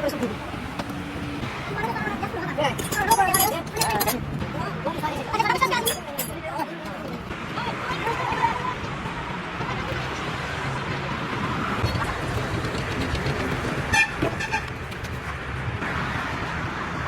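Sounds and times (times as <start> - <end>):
engine and road noise rumble: 0.0 - 17.0
vehicle horn toots: 13.9 - 14.7.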